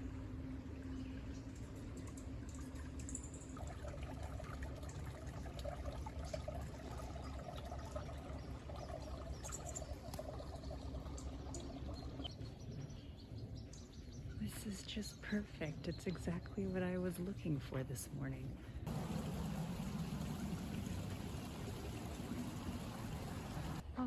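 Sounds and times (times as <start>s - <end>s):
creek trickling and gurgling: 0.0s - 14.4s, 18.8s - 23.8s.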